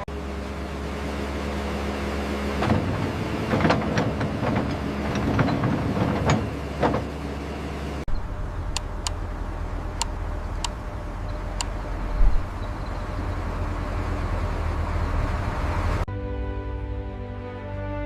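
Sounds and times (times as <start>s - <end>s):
heavy machinery engine running: 0.0s - 16.1s
sharp clanks and knocks: 2.6s - 7.2s.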